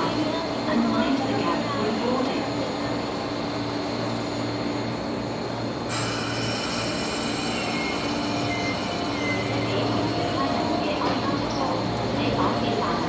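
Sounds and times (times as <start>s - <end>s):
train hum: 0.0s - 13.0s
high wheel squeals: 5.9s - 9.9s.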